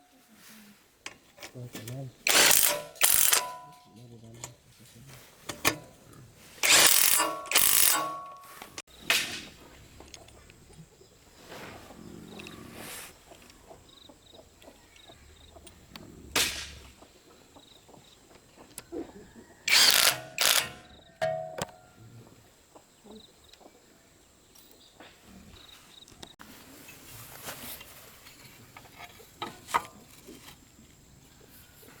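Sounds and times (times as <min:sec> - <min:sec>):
metal tools clicking and knocking: 0:01.4 - 0:04.6, 0:06.6 - 0:08.8, 0:19.7 - 0:21.8
hard metal clanks: 0:02.2 - 0:04.0, 0:06.6 - 0:09.4, 0:19.7 - 0:21.8.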